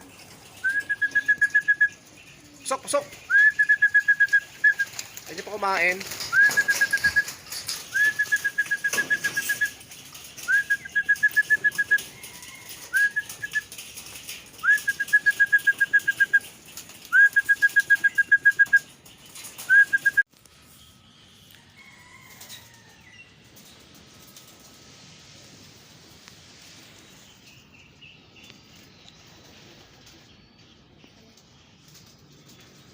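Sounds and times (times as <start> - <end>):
pigeon wings flapping: 0.0 - 20.2.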